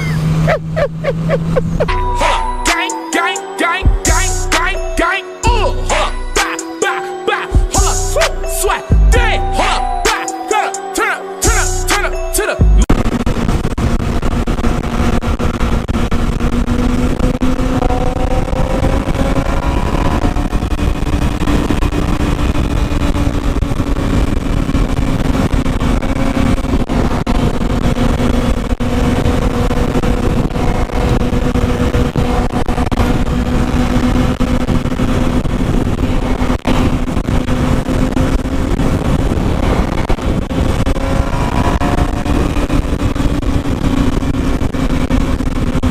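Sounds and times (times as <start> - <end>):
motorcycle engine cruising: 0.0 - 45.9
wind rushing on microphone: 12.9 - 45.9.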